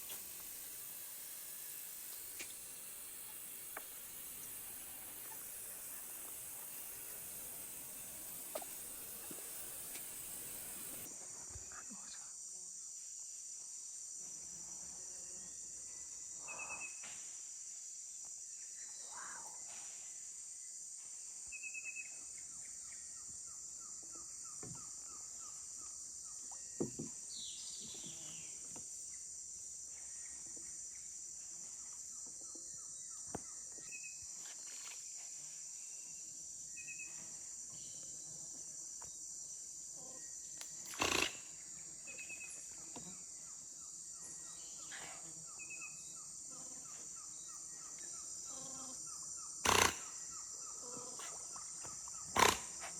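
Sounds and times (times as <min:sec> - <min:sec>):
steady hiss: 0:00.0 - 0:12.4
insect chorus drone: 0:00.0 - 0:52.9.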